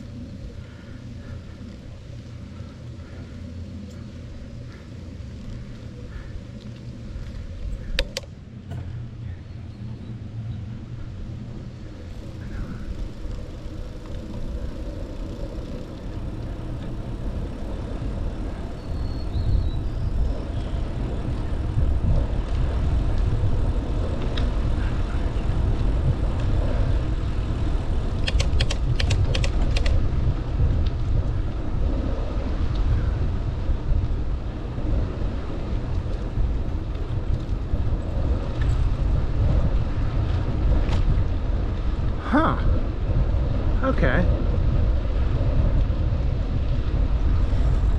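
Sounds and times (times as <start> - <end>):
wind and bicycle ride noise: 0.0 - 47.9
sharp clicks: 7.9 - 8.3, 28.2 - 30.0.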